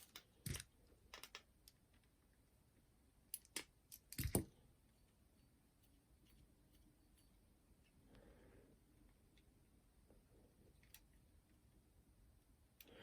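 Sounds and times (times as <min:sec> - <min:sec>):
clicks of small parts handled: 0:00.0 - 0:02.1, 0:03.3 - 0:04.5.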